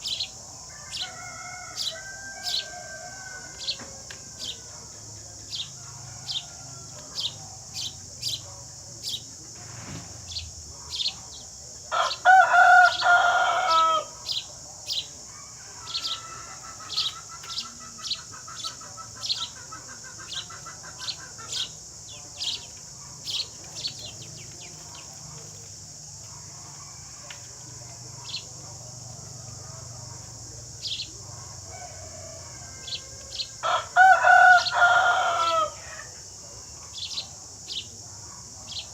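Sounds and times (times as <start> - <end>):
sparrows chirping: 0.0 - 27.0, 27.7 - 38.9
rooster crowing: 0.6 - 5.0, 5.8 - 7.4, 11.9 - 14.4, 15.2 - 18.2, 30.9 - 36.2.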